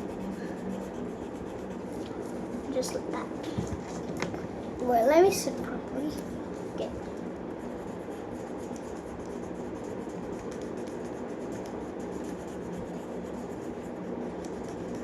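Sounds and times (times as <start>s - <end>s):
pencil shading on paper: 0.0s - 3.1s, 7.5s - 15.0s.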